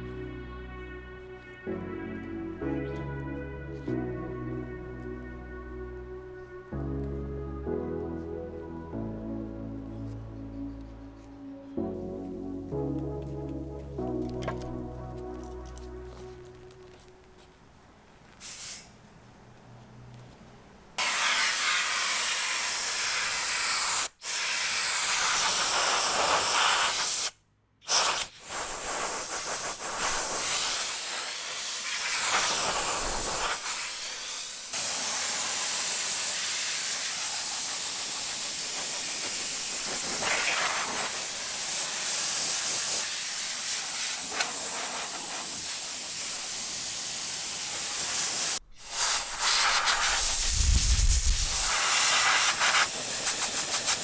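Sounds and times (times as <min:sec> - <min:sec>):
spray wand hissing: 0:18.4 - 0:18.9, 0:21.0 - 0:54.0.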